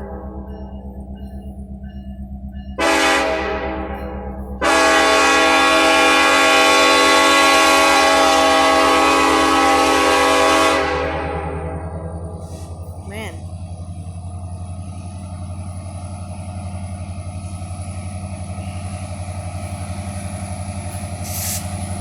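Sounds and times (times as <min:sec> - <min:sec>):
locomotive air horn blasts: 0:00.0 - 0:00.6, 0:02.8 - 0:11.7
locomotive engine rumble: 0:00.0 - 0:22.0.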